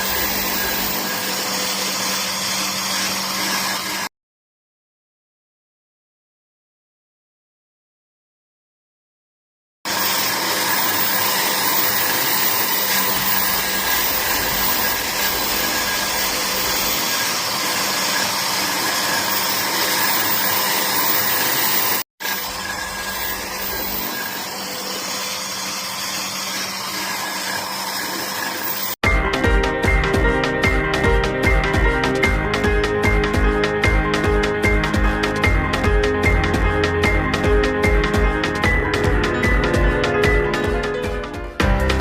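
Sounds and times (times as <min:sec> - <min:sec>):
power tool motor whine: 0:00.0 - 0:04.1, 0:09.9 - 0:29.0.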